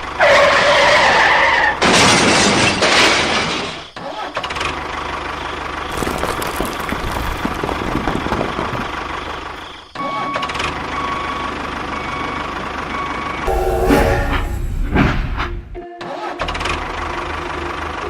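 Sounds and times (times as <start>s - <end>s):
faint thin tone: 13.5s - 15.8s.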